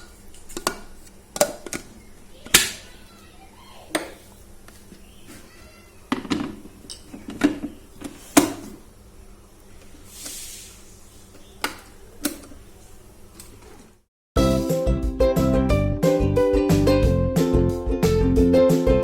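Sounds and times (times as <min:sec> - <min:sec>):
kitchen utensils and dishes clinking: 0:00.0 - 0:03.0, 0:06.1 - 0:08.8.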